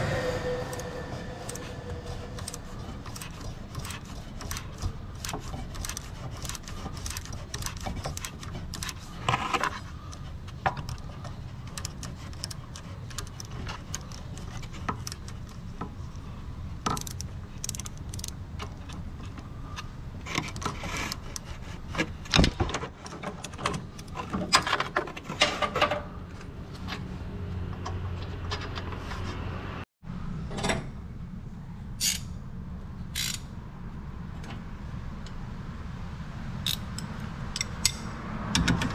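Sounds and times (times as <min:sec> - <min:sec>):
steady low hum: 0:00.0 - 0:22.3.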